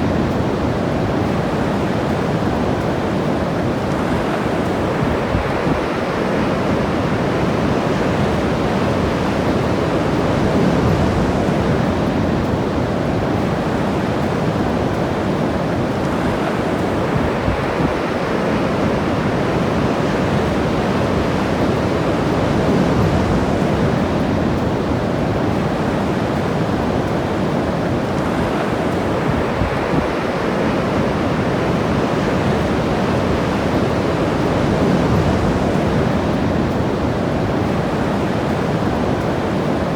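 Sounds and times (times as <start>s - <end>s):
ocean waves breaking: 0.0s - 39.9s
wind buffeting microphone: 0.0s - 39.9s.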